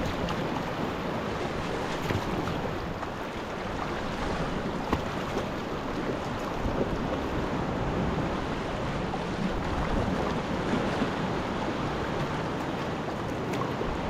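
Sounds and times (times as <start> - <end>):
sea waves surging: 0.0 - 14.0.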